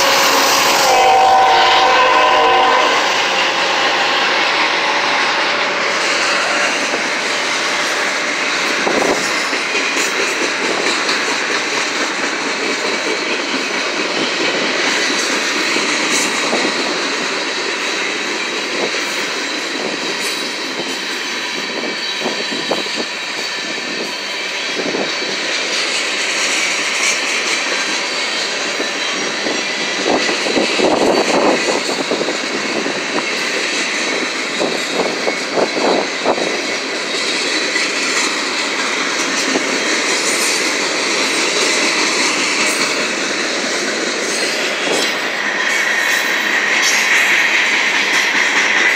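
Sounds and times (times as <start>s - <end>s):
freight train cars rumbling: 0.0s - 48.9s.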